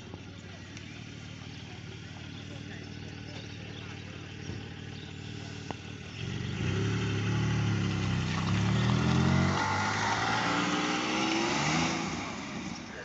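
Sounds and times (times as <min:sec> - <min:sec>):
car accelerating past: 0:06.1 - 0:12.9.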